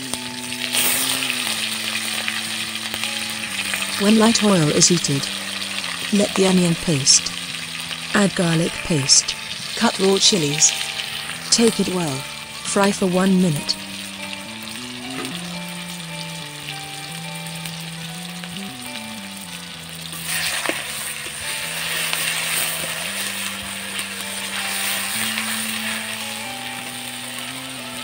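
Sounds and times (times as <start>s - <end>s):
food sizzling in hot oil: 0.0s - 28.0s
soft background music: 0.0s - 28.0s.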